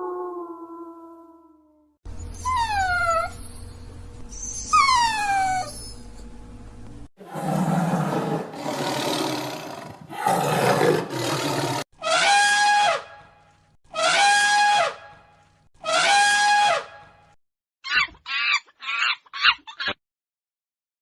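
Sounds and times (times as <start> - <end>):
rough growling roars: 7.2 - 11.8
loud held animal call: 7.2 - 13.2, 13.9 - 15.2, 15.8 - 17.0.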